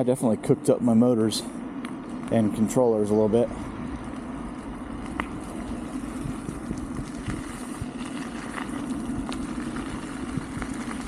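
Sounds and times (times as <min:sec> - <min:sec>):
electric scooter motor hum: 0:00.0 - 0:11.0
wind: 0:00.0 - 0:11.0
tyre noise: 0:02.0 - 0:11.0
small ticks: 0:03.9 - 0:11.0.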